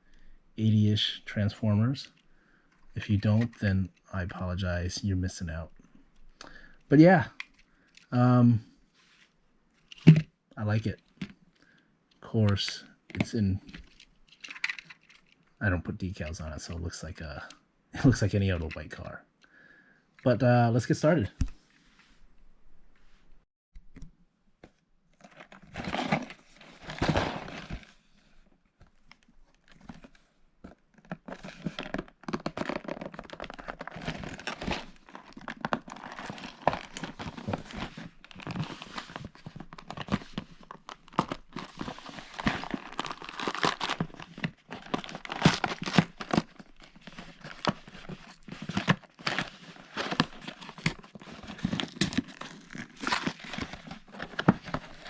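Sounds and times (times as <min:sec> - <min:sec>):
plastic bags crinkling: 0:31.4 - 0:55.0.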